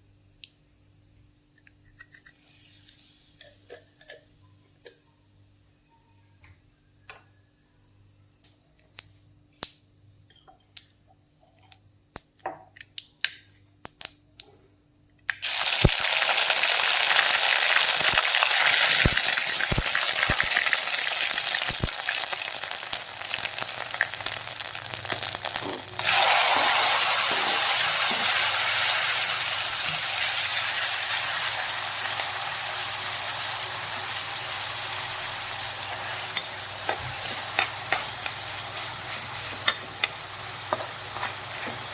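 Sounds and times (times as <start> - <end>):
food sizzling in hot oil: 15.4 - 41.9.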